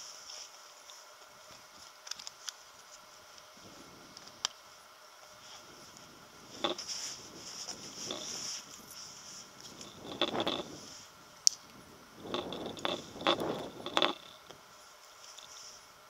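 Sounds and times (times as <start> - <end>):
scraping and rustling handling noise: 0.0 - 4.4, 5.0 - 11.2.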